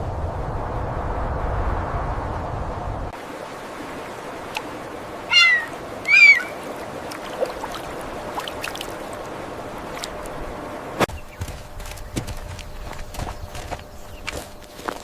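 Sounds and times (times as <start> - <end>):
animal meowing calls: 5.3 - 6.6.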